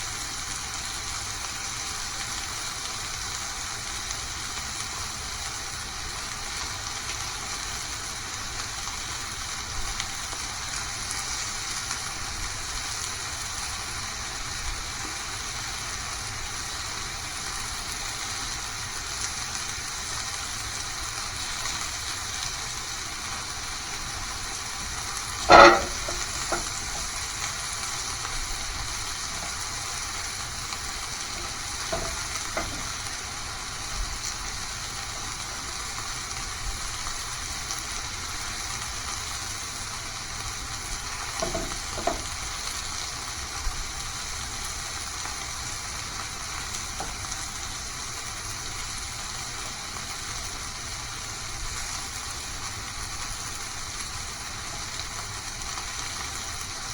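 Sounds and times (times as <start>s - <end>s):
food sizzling in a pan: 0.0s - 56.9s
loud metal clank: 25.4s - 27.1s, 31.4s - 32.9s, 41.4s - 42.2s
utensils knocking: 25.4s - 27.1s, 31.3s - 33.0s, 41.4s - 42.3s.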